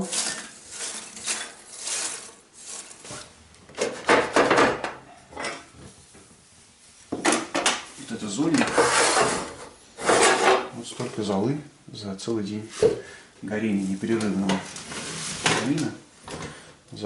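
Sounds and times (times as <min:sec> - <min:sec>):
ash scraped from fireplace: 0:00.0 - 0:03.4, 0:08.6 - 0:10.7.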